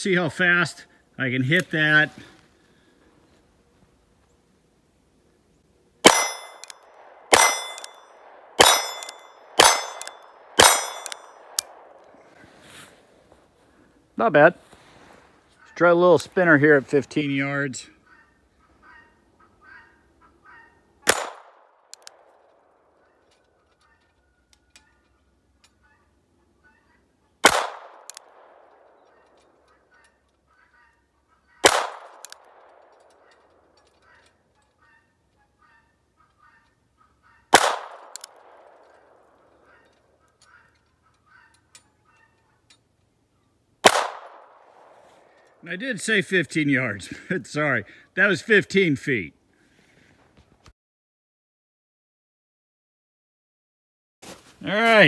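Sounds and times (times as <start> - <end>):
gunshots with echo: 6.0 - 12.0, 21.0 - 21.7, 27.4 - 29.0, 31.6 - 33.3, 37.5 - 39.4, 43.8 - 45.0.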